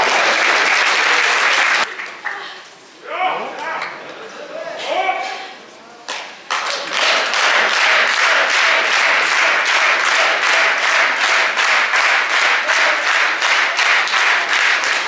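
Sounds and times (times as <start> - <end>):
audience clapping in rhythm: 0.0 - 2.5, 6.1 - 15.0
crowd noise: 0.0 - 15.0.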